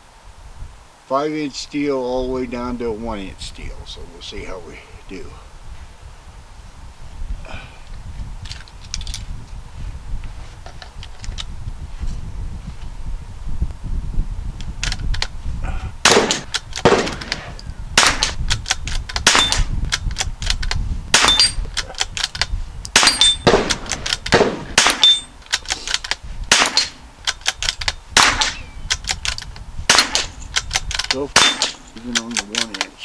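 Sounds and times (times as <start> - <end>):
rifle shots: 16.0 - 18.4, 19.2 - 19.7, 21.1 - 21.6, 22.9 - 25.4, 26.5 - 28.7, 29.9 - 30.6, 31.2 - 31.9
bullet pinging off steel plate: 19.2 - 19.7, 21.1 - 21.6, 22.9 - 25.4, 27.7 - 28.7, 29.9 - 30.7, 31.3 - 32.8.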